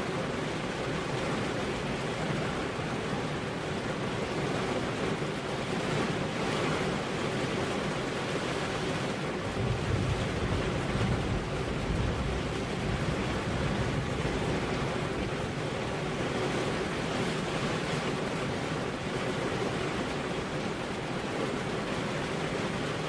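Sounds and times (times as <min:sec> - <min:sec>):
rain: 0:00.0 - 0:23.0
wind: 0:00.0 - 0:23.0
low rumble of thunder: 0:09.4 - 0:16.2.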